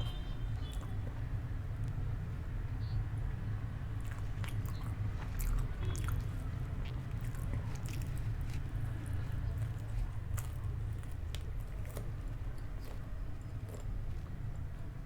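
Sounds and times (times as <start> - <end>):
person chewing food: 3.9 - 14.3.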